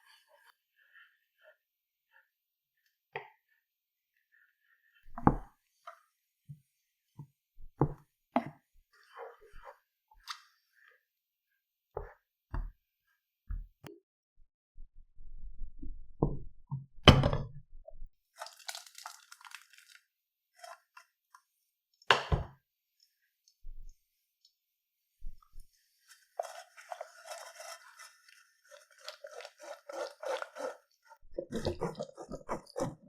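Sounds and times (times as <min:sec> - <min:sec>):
crinkly rustling: 0:26.0 - 0:31.1.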